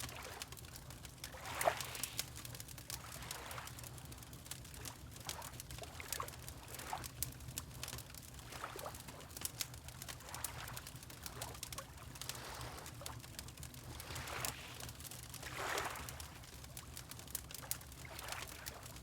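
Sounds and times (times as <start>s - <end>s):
wood fire crackling: 0.1s - 19.0s
water lapping: 3.1s - 3.7s, 12.2s - 13.0s, 13.8s - 16.5s.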